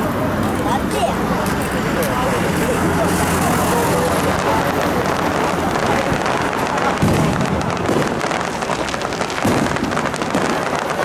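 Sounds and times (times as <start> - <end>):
firework shells booming: 4.0 - 11.0
crackle of bursting stars: 4.1 - 11.0.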